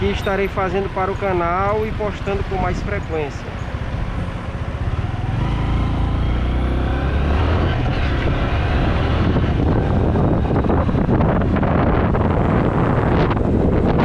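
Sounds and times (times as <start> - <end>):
wind rushing over microphone: 0.0 - 14.0
motorcycle engine accelerating: 4.4 - 14.0.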